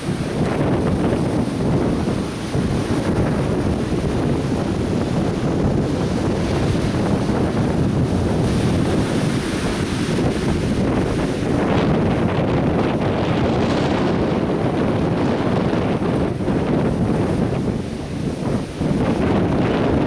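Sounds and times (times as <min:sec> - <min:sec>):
surf breaking on beach: 0:00.0 - 0:20.0
wind buffeting microphone: 0:00.0 - 0:20.0.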